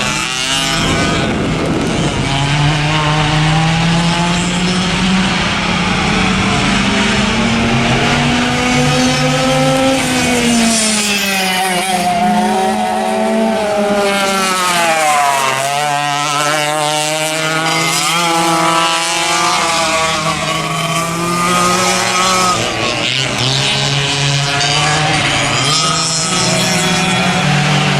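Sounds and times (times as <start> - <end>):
kart engine running hard: 0.0 - 27.9
other kart engines: 0.0 - 27.9.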